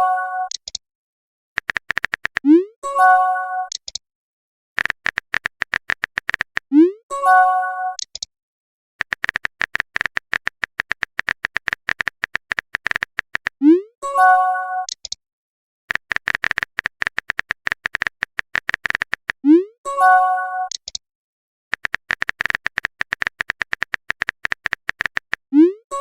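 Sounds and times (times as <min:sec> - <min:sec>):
rapid typing clicks: 0:01.6 - 0:02.5, 0:04.8 - 0:06.7, 0:09.0 - 0:13.6, 0:15.9 - 0:19.4, 0:21.7 - 0:25.5.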